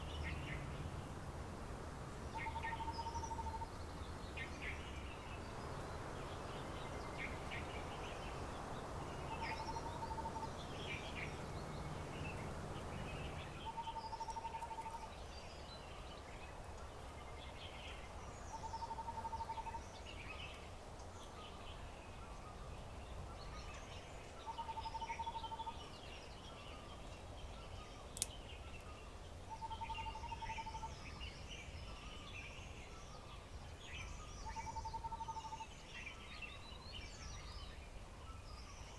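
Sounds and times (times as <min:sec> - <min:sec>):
low rushing noise: 0:00.0 - 0:13.7
birds chirping and calling: 0:00.0 - 0:13.8.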